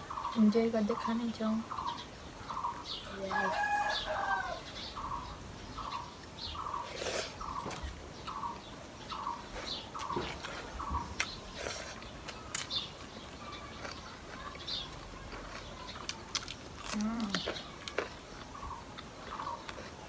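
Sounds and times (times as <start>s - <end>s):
higher bird chirps: 0.0s - 15.0s
sharp eating clicks: 5.8s - 20.0s.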